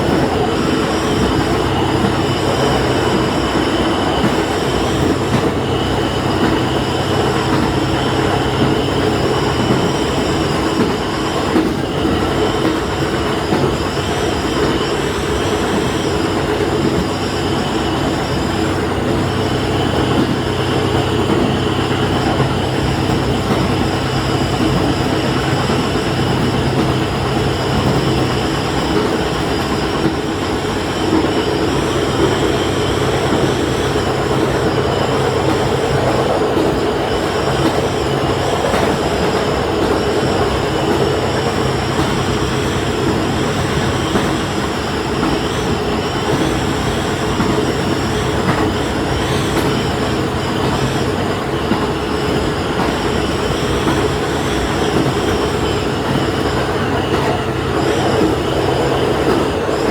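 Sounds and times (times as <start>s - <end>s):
rail and wheel noise: 0.0s - 59.9s
railcar engine hum: 0.0s - 59.9s.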